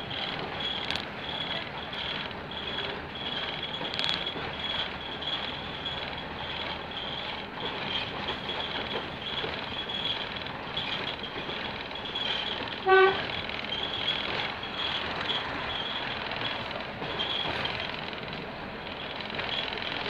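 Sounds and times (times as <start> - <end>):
diesel railcar running: 0.0 - 20.0
train horn toot: 12.8 - 13.3.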